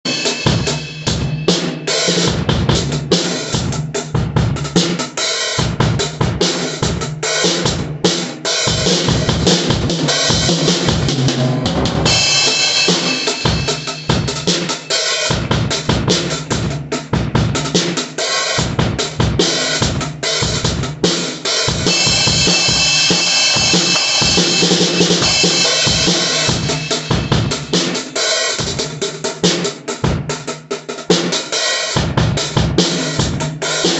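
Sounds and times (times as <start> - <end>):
crash and ride cymbals: 0.1 - 3.8, 4.5 - 30.4, 31.0 - 33.9
bass drum: 0.4 - 1.6, 2.2 - 4.9, 5.6 - 8.0, 8.7 - 14.7, 15.3 - 18.0, 18.6 - 27.9, 30.0 - 30.5, 32.0 - 33.9
snare drum: 4.8 - 28.8.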